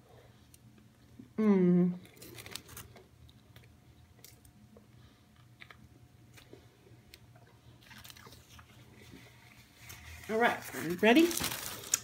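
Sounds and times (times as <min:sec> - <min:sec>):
low room hum: 0:00.0 - 0:12.0
faint chewing: 0:02.0 - 0:10.3.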